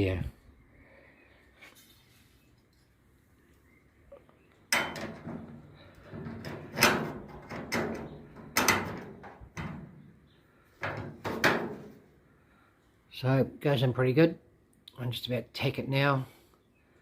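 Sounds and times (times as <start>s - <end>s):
ringing metal knocks and clunks: 4.7s - 10.0s, 10.8s - 11.9s.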